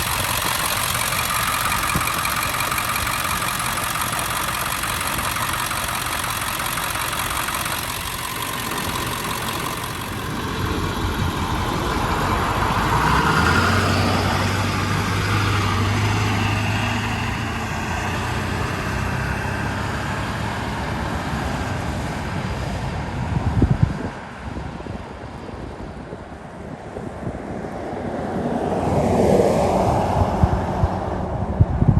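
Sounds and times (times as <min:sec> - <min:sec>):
diesel engine humming: 0:00.0 - 0:20.6.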